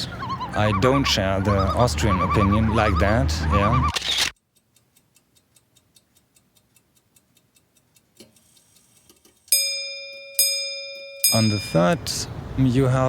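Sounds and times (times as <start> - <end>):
faint clock ticking: 4.4 - 9.5
bell-like chime: 9.5 - 12.0.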